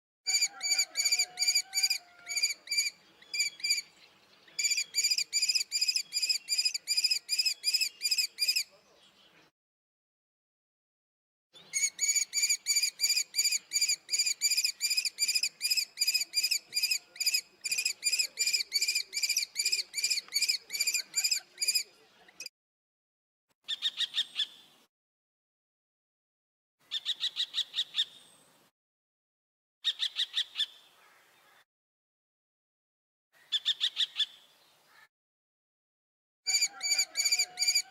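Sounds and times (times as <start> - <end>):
kestrel shrill calls: 0.3 - 3.9, 4.6 - 8.7, 11.6 - 21.8, 36.5 - 37.9.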